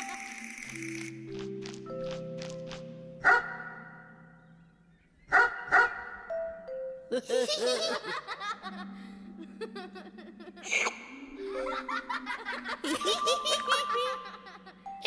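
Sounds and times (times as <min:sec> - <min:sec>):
cartoon characters laughing: 0:07.1 - 0:15.0.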